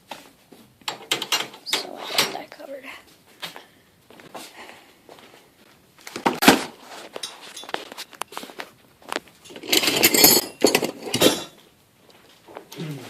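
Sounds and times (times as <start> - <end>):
garage door hardware rattling: 0.9 - 2.4, 9.5 - 11.6.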